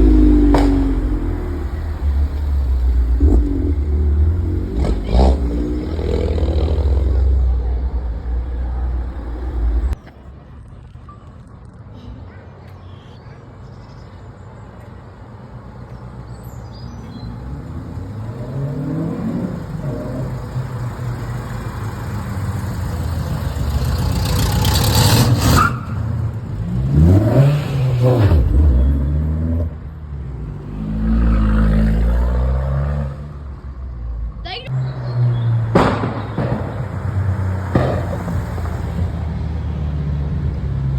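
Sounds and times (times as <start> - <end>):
car engine accelerating: 0.0 - 10.0, 17.1 - 33.9
second engine: 0.0 - 10.0, 17.0 - 25.8.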